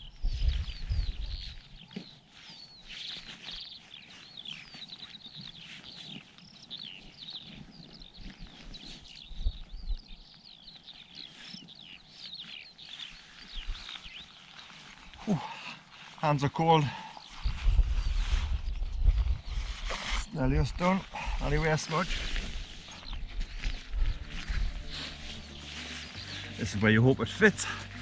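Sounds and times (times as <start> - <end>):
wind rumble on microphone: 0.0 - 1.8, 7.4 - 10.4, 17.3 - 26.3
bird chirping: 0.0 - 28.0.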